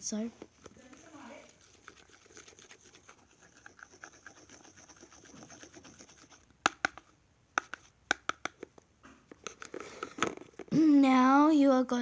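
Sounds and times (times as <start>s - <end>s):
utensil scraping soap in bowl: 0.6s - 7.0s
utensil knocking against bowl: 6.7s - 8.6s.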